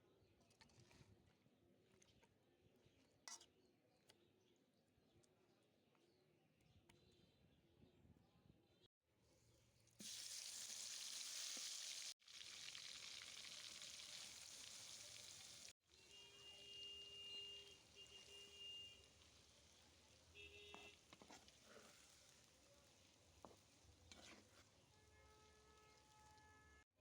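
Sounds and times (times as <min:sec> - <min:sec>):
food sizzling in hot oil: 0:10.0 - 0:15.8, 0:21.2 - 0:24.2.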